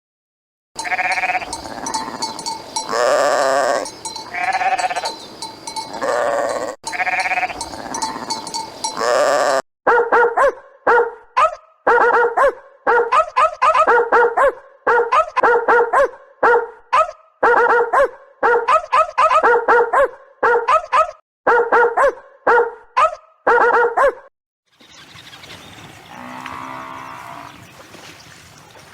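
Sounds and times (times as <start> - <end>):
drawn-out animal bleats: 0.8 - 9.6, 26.0 - 27.6.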